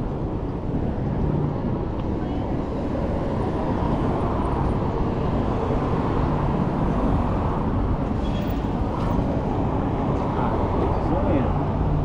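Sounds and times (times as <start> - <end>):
road noise: 0.0 - 12.0
street traffic: 0.0 - 12.0
wind rush: 1.4 - 11.0.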